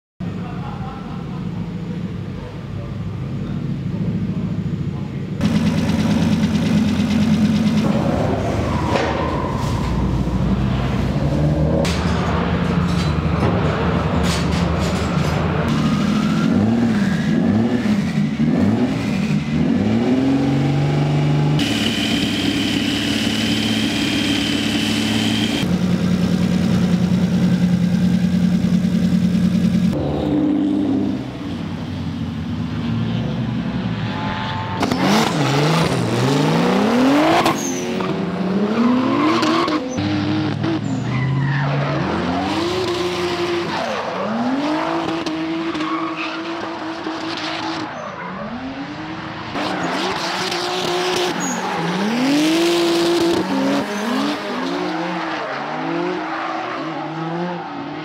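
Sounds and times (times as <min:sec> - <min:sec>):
car engine revving hard: 0:16.4 - 0:25.7, 0:34.8 - 0:40.8, 0:49.5 - 0:56.2
tyres squealing: 0:49.6 - 0:52.5.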